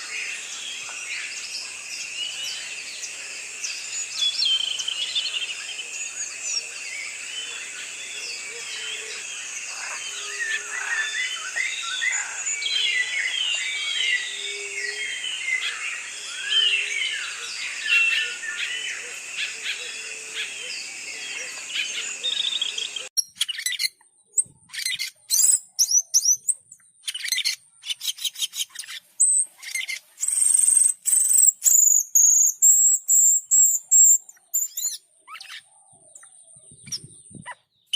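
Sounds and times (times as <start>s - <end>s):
birds chirping: 0.0s - 37.9s.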